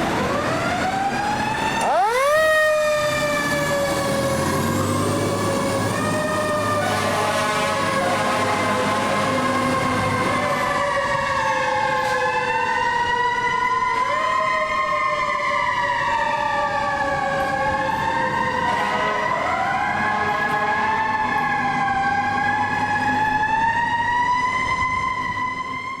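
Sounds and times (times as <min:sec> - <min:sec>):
fire engine sirens wailing: 0:00.0 - 0:26.0.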